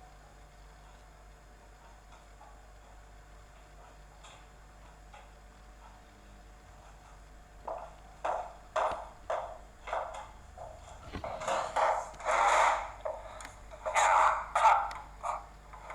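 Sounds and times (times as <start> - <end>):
short knocks: 8.3 - 13.2
clattering handling noise: 9.8 - 13.7.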